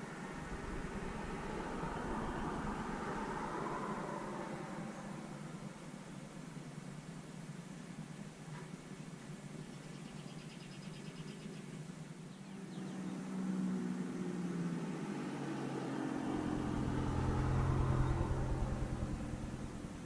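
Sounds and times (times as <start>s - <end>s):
car driving past: 0.0s - 6.0s, 12.6s - 20.0s.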